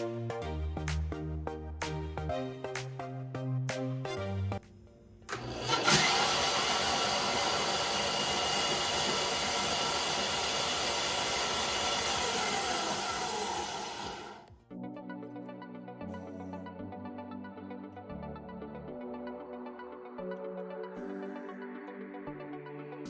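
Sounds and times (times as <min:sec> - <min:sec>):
band saw whirring: 0:05.3 - 0:14.5.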